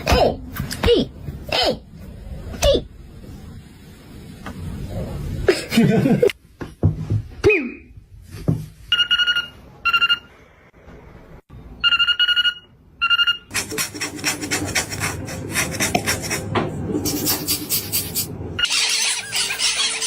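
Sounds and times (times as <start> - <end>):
voice-like sliding calls: 17.1 - 20.0.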